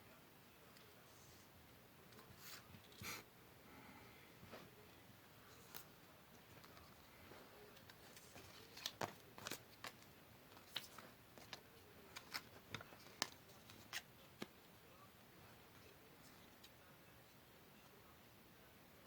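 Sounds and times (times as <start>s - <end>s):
paper clicks and rustles: 5.5s - 14.6s.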